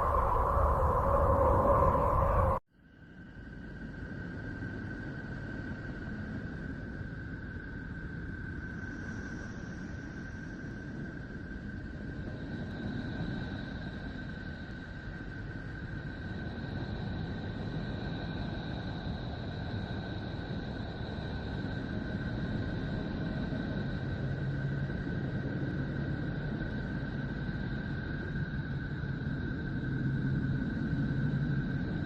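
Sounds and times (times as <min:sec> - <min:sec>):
low hum: 0:00.0 - 0:02.6.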